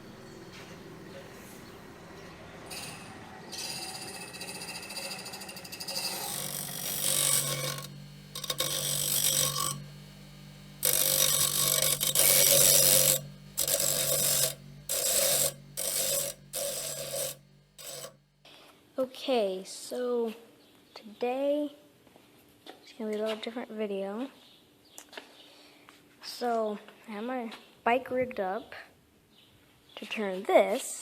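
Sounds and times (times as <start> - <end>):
low hum of belt-driven wheel: 0.0 - 18.4
metal grinding on grinding wheel: 0.2 - 18.2.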